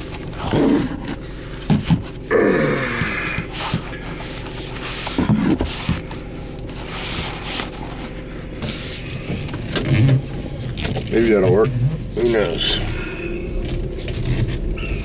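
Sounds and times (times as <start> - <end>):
steady low hum: 0.0 - 15.0
paper rustling: 3.5 - 9.1.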